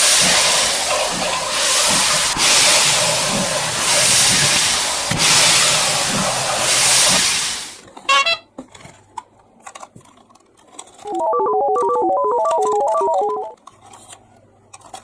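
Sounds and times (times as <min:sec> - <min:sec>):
toy train steam puffs: 0:00.0 - 0:08.0
toy train toot: 0:08.0 - 0:08.5
electronic tune: 0:11.1 - 0:13.6.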